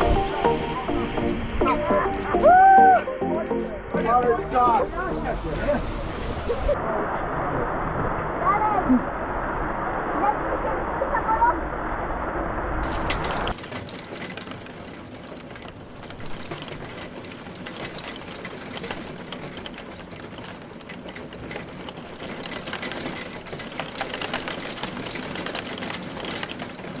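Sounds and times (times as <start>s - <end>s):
engine running with clatter: 12.8s - 27.0s.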